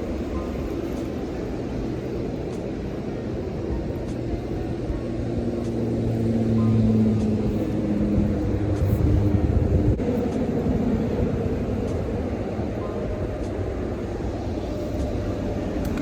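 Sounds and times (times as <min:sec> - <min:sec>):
road rumble: 0:00.0 - 0:16.0
vehicle engine passing: 0:04.2 - 0:12.6.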